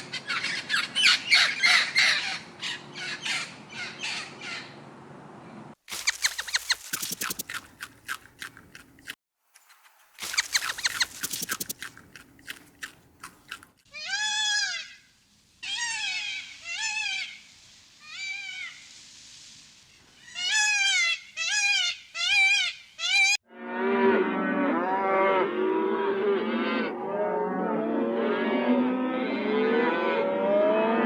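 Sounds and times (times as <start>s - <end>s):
high rising and falling animal calls: 5.9s - 7.9s, 10.2s - 12.0s
sharp clicks: 5.9s - 9.2s, 10.2s - 13.4s.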